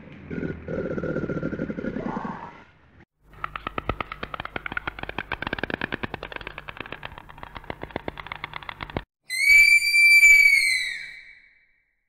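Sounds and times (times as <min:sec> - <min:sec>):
stork bill-clattering: 0:03.2 - 0:09.1
sloth high whistle call: 0:09.3 - 0:11.6.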